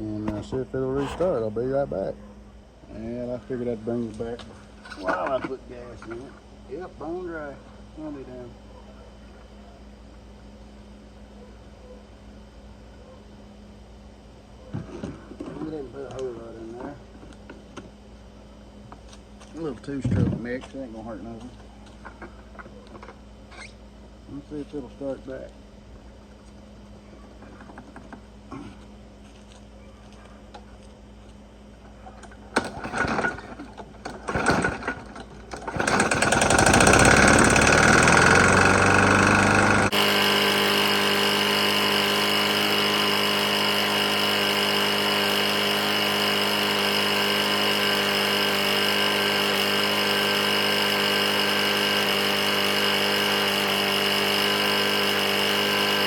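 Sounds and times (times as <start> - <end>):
lawn mower engine running: 31.8 - 56.0
pull cord starter pulls: 32.5 - 56.0.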